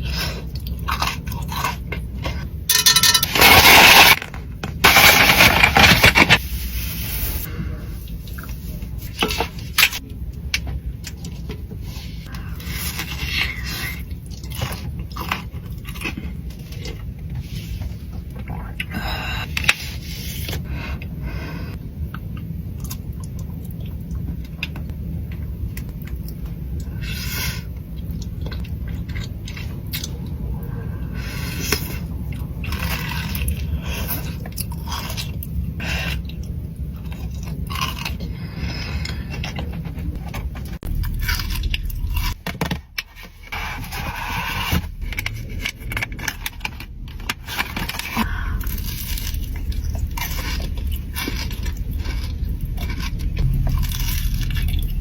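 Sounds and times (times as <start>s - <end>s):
steady low hum: 0.0s - 55.0s
crunching chewing: 27.9s - 55.0s.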